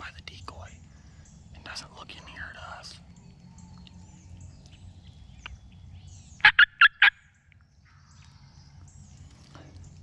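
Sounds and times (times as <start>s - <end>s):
turkey yelps: 6.4s - 7.2s.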